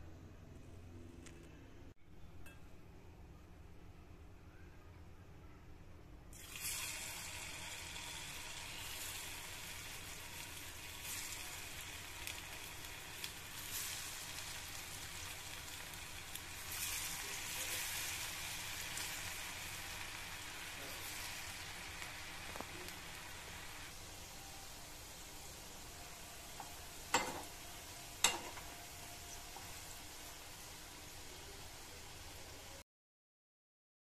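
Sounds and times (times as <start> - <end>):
potatoes sizzling in hot oil: 6.3 - 32.8.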